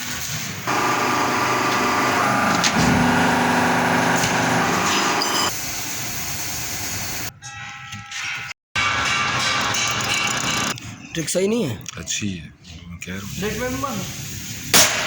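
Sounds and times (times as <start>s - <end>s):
metal lathe cutting steel: 0.6s - 5.6s
steady ringing tone: 2.8s - 5.5s.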